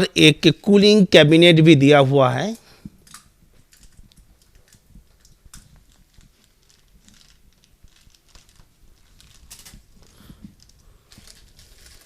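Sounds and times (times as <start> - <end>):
faint rustling: 2.7 - 12.0.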